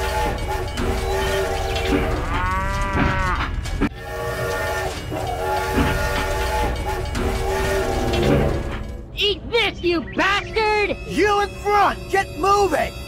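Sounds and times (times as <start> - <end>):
cow mooing: 0.0 - 8.2
train rumble: 0.0 - 9.5.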